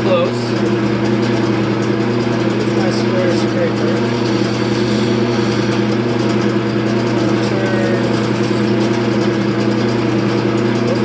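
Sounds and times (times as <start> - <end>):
wood lathe motor humming: 0.0 - 11.0
lathe hiss: 2.6 - 9.5.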